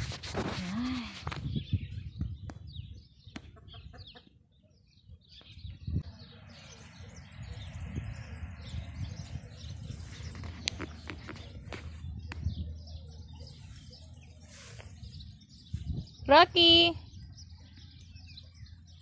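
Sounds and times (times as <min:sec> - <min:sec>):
birds chirping: 0:00.4 - 0:19.0.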